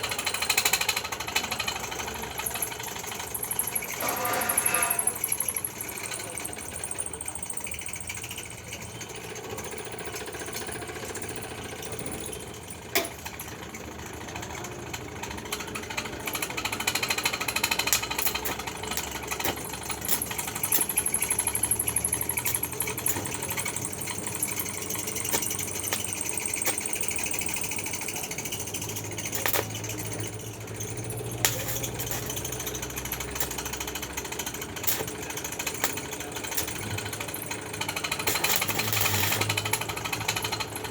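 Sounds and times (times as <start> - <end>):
arc welding crackling: 15.5 - 40.9.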